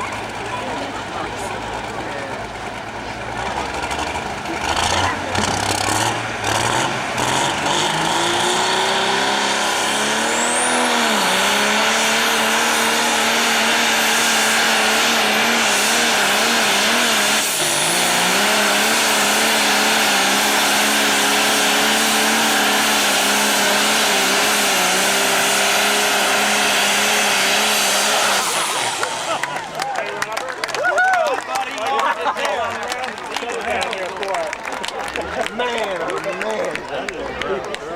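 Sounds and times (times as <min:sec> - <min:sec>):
tractor engine running under load: 0:00.0 - 0:30.8.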